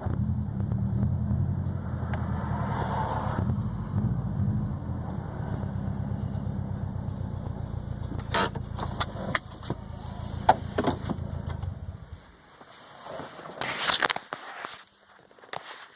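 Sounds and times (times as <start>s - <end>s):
car engine rumbling: 0.0s - 14.2s
sharp clicks and knocks: 7.4s - 11.8s.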